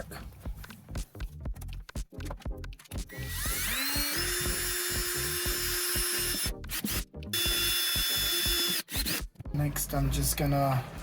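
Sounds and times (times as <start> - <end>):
power drill running: 3.1 - 9.2.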